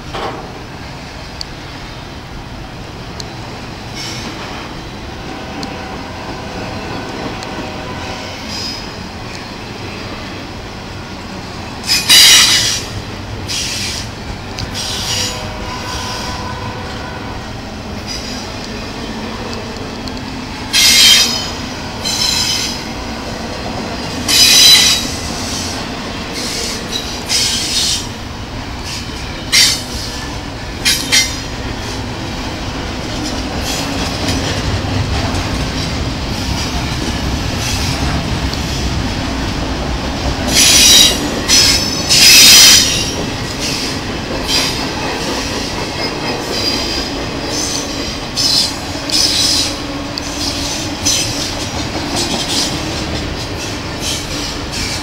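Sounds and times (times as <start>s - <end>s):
freight train rumbling on rails: 0.0s - 55.0s
high-pitched metallic squeals: 24.3s - 25.2s.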